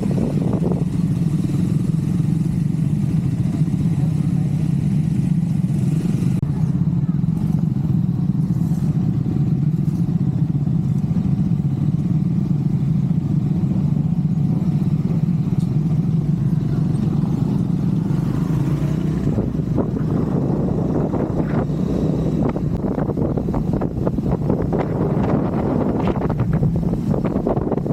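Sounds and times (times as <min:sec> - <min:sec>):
wind noise: 0:00.0 - 0:01.7, 0:18.0 - 0:27.9
motorcycle engine droning: 0:00.0 - 0:27.9.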